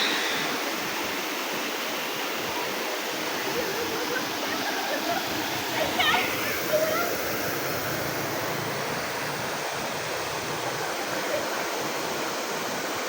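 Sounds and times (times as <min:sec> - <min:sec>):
waterfall rushing: 0:00.0 - 0:02.1.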